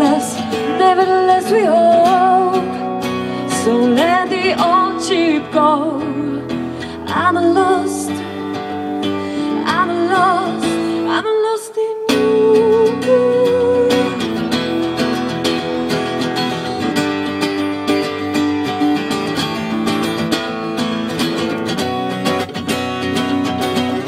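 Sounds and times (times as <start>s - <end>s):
acoustic guitar strumming: 0.0s - 11.2s, 12.1s - 24.0s.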